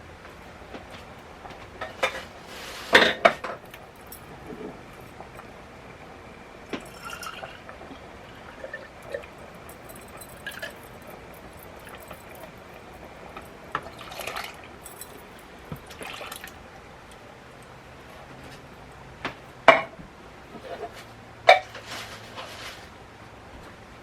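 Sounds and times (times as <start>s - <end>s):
food pouring and scraping from cans: 1.8s - 3.7s, 20.5s - 23.0s
sharp clinks: 9.0s - 13.5s.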